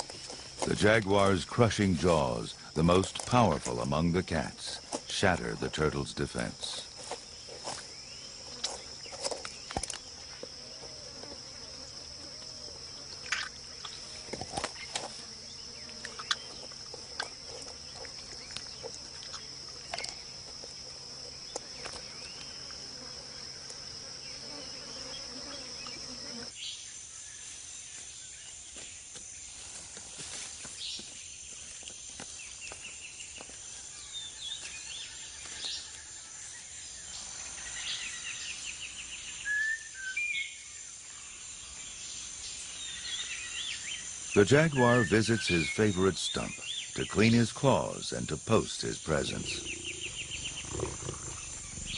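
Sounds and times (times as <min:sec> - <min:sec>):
insect chirps: 0:00.0 - 0:51.9
insects droning high-pitched: 0:00.0 - 0:51.9.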